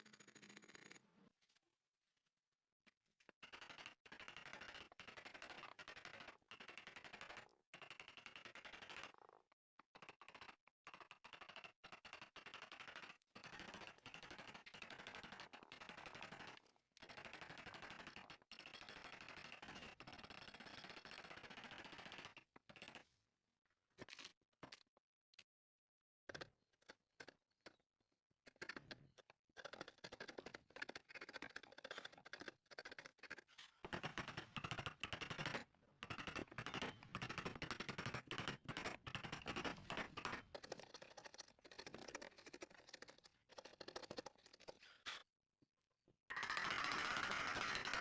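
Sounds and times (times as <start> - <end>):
tools scratching and clicking wood: 28.6 - 45.2.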